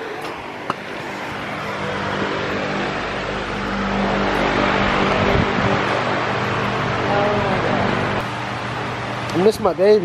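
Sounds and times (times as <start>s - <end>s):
car engine hum: 0.0s - 10.0s
tyre and wind noise: 5.0s - 6.1s.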